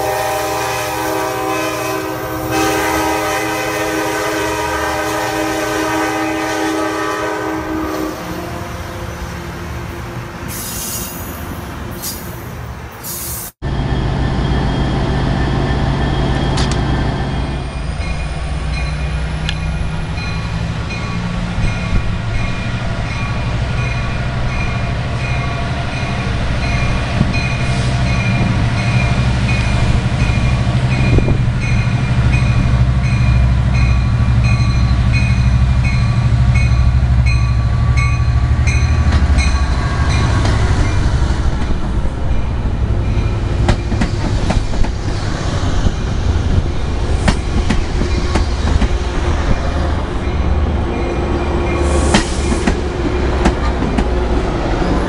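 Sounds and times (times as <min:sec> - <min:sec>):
locomotive diesel engine drone: 0:13.6 - 0:22.3.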